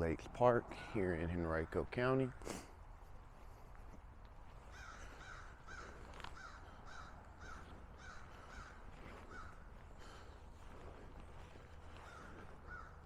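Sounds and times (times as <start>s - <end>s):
faint bird calls: 4.5s - 13.0s.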